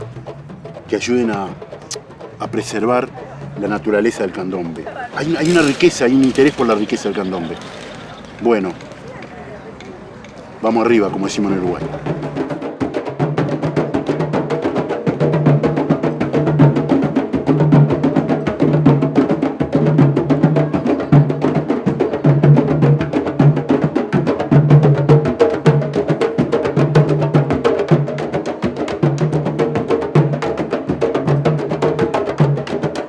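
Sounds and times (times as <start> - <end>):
deep drum pulses: 0.0 - 12.6
fast stick and hand drumming: 0.0 - 33.0.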